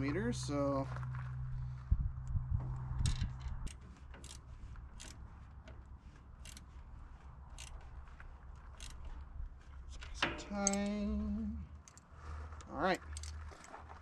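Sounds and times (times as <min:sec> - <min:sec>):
socket wrench ratcheting: 0:03.0 - 0:05.2, 0:06.4 - 0:06.7, 0:07.5 - 0:07.9, 0:08.6 - 0:09.3, 0:10.0 - 0:11.0, 0:13.1 - 0:13.4.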